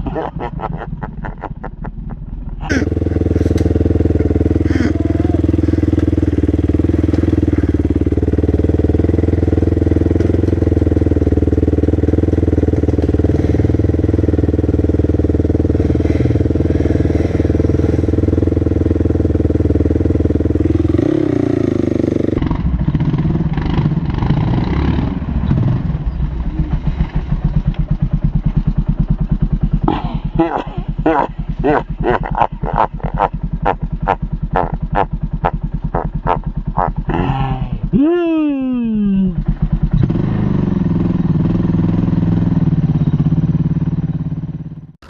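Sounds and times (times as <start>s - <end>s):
small off-road vehicle engine: 0.0s - 45.0s.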